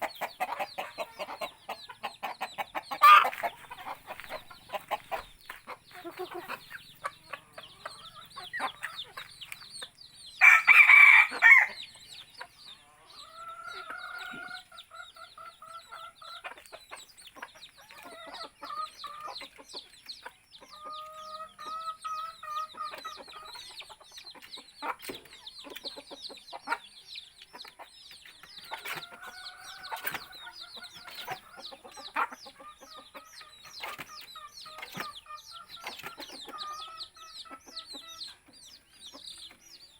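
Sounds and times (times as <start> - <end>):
chickens clucking: 0.0 - 39.9
roosters crowing: 3.0 - 5.2, 10.4 - 11.9
loud chicken call: 10.4 - 11.8.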